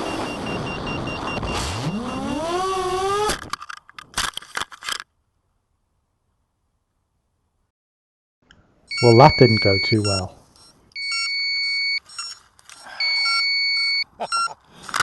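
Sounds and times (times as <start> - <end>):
drone motors whirring: 0.0 - 3.5.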